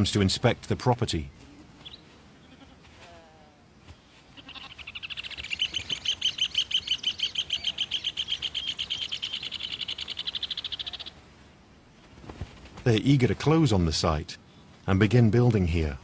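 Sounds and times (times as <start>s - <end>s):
bird calling high sharp notes: 4.5s - 11.2s.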